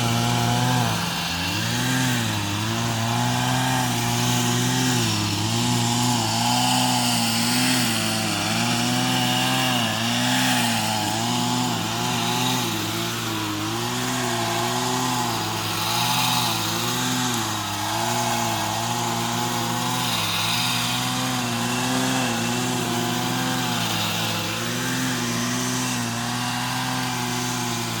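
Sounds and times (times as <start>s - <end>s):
pruning saw engine revving: 0.0s - 28.0s.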